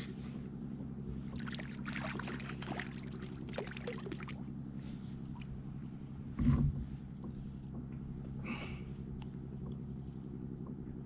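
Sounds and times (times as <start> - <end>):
steady low hum: 0.0 - 11.0
water splashing and dripping: 1.3 - 4.5.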